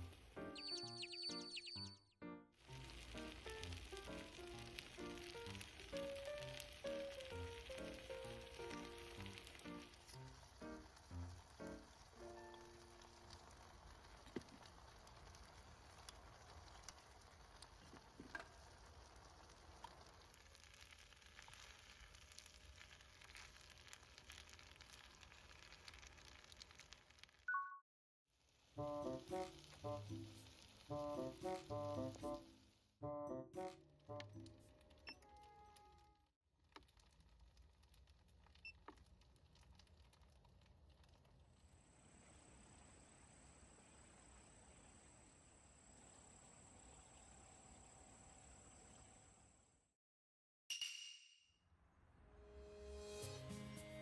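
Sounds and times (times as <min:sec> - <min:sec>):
food sizzling in a pan: 0:00.0 - 0:01.0, 0:02.6 - 0:27.5, 0:28.4 - 0:32.8, 0:41.6 - 0:49.4, 0:52.7 - 0:54.0.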